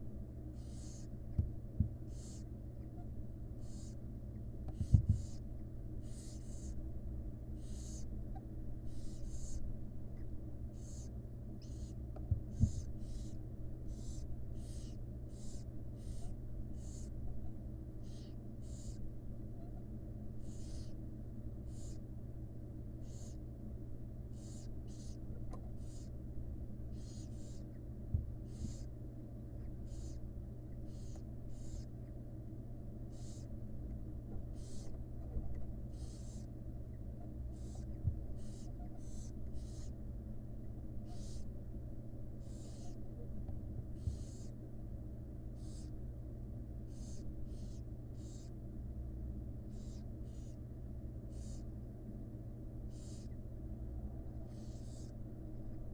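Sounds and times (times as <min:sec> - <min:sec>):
steady low hum: 0:00.0 - 0:55.9
owl chicks hissing begging calls: 0:00.5 - 0:01.2, 0:02.0 - 0:04.1, 0:04.7 - 0:06.8, 0:07.5 - 0:08.2, 0:08.8 - 0:09.7, 0:10.7 - 0:21.0, 0:21.6 - 0:22.1, 0:22.9 - 0:23.5, 0:24.3 - 0:26.2, 0:26.9 - 0:27.8, 0:28.4 - 0:29.0, 0:29.6 - 0:32.2, 0:33.1 - 0:33.6, 0:34.5 - 0:35.0, 0:35.8 - 0:36.5, 0:37.2 - 0:40.0, 0:41.0 - 0:41.5, 0:42.4 - 0:43.1, 0:44.0 - 0:44.6, 0:45.5 - 0:46.0, 0:46.9 - 0:48.6, 0:49.7 - 0:50.6, 0:51.2 - 0:51.8, 0:52.8 - 0:53.4, 0:54.4 - 0:55.2
soft knocks in nest box: 0:04.7 - 0:05.4.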